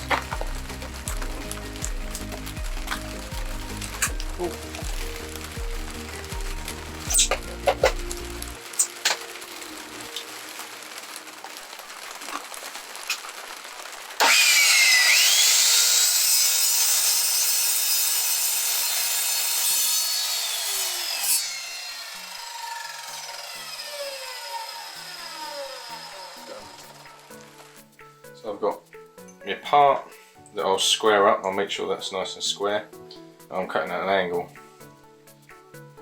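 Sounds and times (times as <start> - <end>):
power saw cutting aluminium: 0.0 - 10.2, 14.2 - 27.8.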